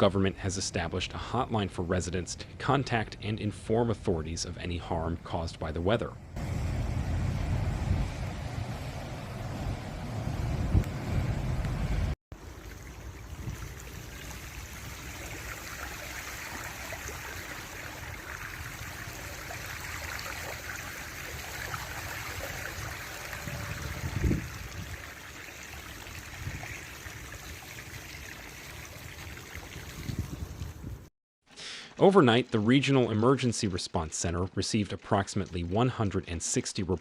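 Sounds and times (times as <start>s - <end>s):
rushing storm noise: 6.4s - 12.2s, 21.8s - 25.0s.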